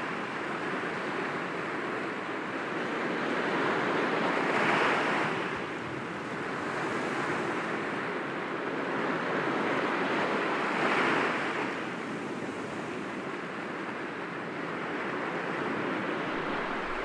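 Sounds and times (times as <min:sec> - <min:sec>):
waves breaking against rocks: 0:16.3 - 0:17.0.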